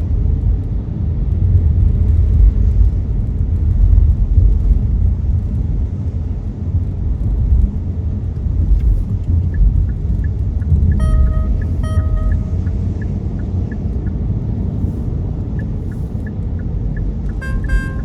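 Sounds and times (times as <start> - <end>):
car tyres and engine rumble: 0.0 - 18.0
faint high ticks: 15.5 - 18.0.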